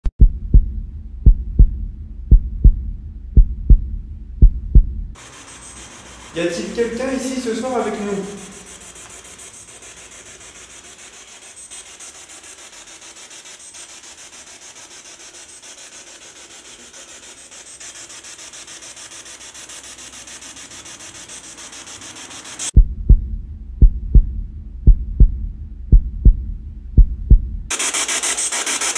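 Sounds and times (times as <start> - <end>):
rasping static hiss: 5.2 - 22.8.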